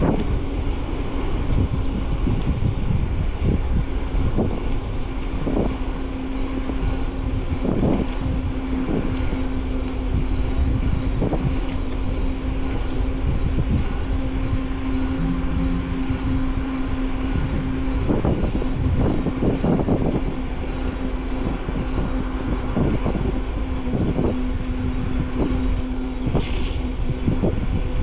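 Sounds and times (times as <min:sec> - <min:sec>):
bicycle tyre rumble: 0:00.0 - 0:28.0
wind on microphone: 0:00.0 - 0:28.0
steady hum: 0:05.8 - 0:27.7.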